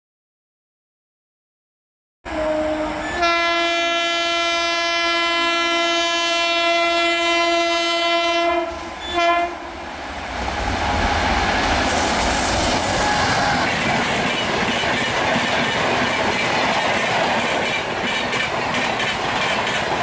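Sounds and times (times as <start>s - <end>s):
locomotive horn blasts: 2.3s - 9.8s
train running noise: 2.3s - 20.0s.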